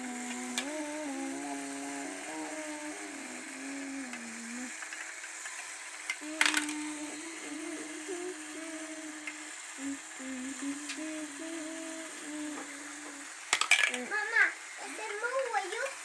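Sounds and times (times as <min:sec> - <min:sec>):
person humming: 0:00.0 - 0:05.0, 0:06.2 - 0:14.3
marble run mechanism clicking: 0:00.1 - 0:09.6, 0:10.8 - 0:16.0
marbles clattering: 0:06.1 - 0:06.9, 0:13.5 - 0:14.4.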